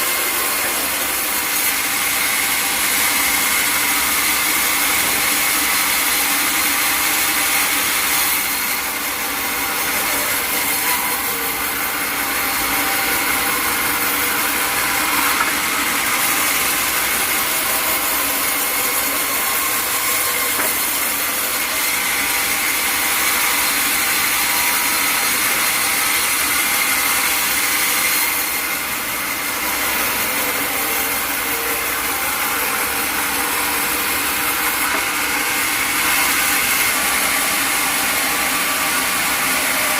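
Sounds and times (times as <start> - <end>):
saw cutting through log: 0.0 - 39.9.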